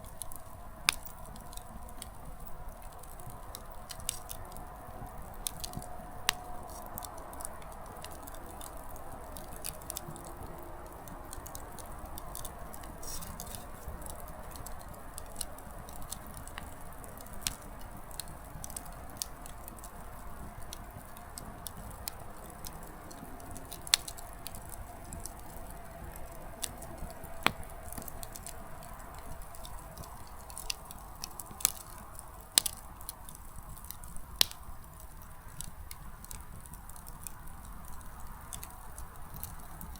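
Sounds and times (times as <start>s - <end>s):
firewood crackling and snapping: 0.0s - 39.9s
loud fire pops: 0.1s - 39.9s
hiss of flame: 11.2s - 16.8s.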